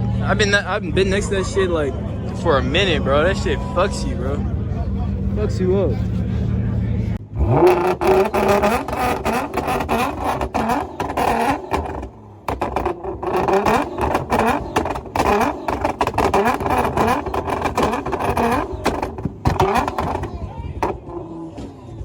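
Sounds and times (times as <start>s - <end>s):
car engine revving: 0.0s - 21.9s
exhaust crackles and pops: 7.2s - 21.8s.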